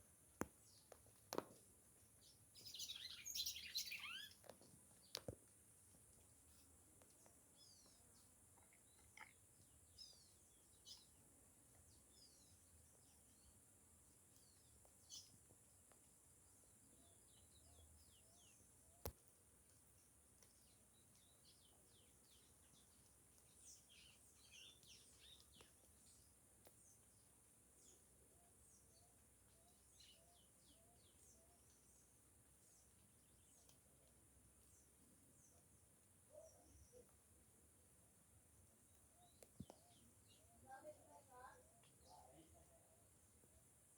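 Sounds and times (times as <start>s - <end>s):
bird chirps: 2.2s - 5.2s
high downward-sweeping bird calls: 2.6s - 4.4s.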